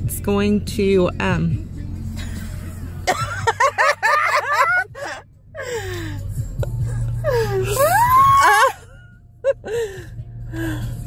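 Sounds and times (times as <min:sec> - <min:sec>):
car engine idling hum: 0:00.0 - 0:11.0
woman whimpering squeals: 0:07.3 - 0:08.9.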